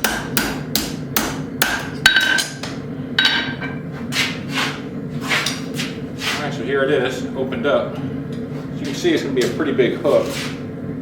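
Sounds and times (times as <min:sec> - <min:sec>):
hammer striking steel on anvil: 0:00.0 - 0:03.8
steady low hum: 0:00.0 - 0:11.0.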